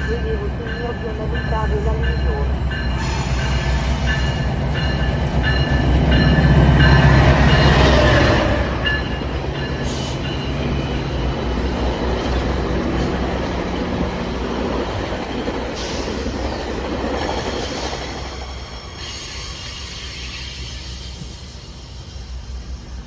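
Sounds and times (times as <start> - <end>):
diesel locomotive engine drone: 0.0 - 23.0
train wheels on rails: 0.0 - 23.0.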